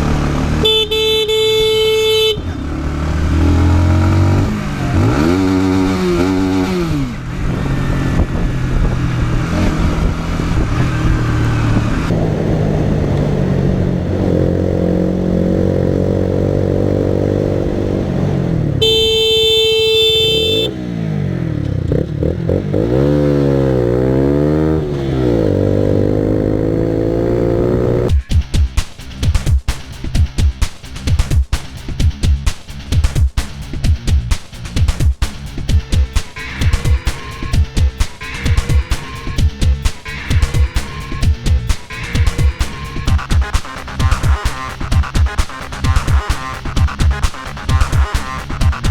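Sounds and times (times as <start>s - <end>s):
motorcycle engine revving: 0.0s - 32.9s, 35.5s - 48.9s
horn: 18.8s - 20.8s
electronic music: 34.0s - 48.9s.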